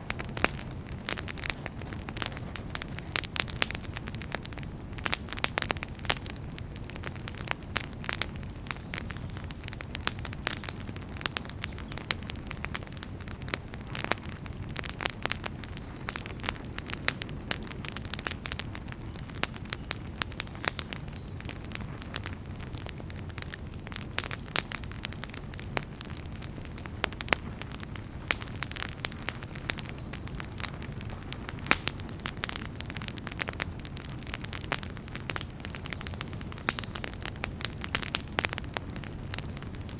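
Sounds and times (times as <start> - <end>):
fireplace fire crackling: 0.0 - 39.9.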